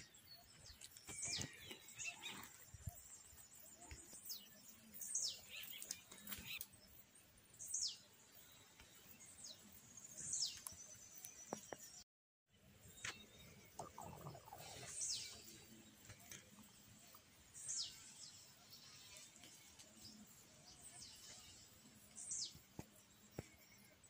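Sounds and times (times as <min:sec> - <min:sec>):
bird calling: 0:13.8 - 0:15.4.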